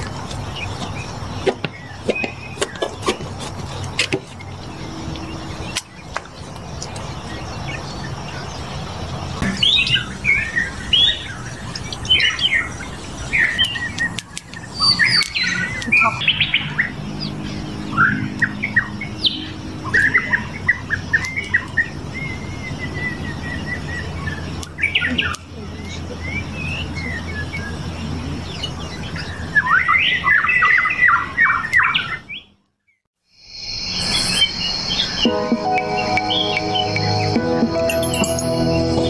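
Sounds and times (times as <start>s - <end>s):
birds chirping and trilling: 0.0s - 32.6s, 33.5s - 39.0s.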